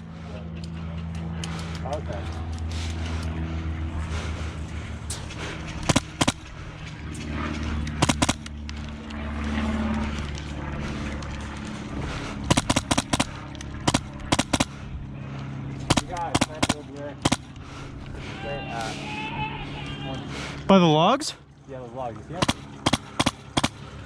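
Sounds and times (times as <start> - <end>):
steady low hum: 0.0 - 24.0
airsoft guns firing: 5.8 - 6.5, 7.9 - 8.5, 12.5 - 14.8, 15.9 - 17.6, 22.4 - 23.9.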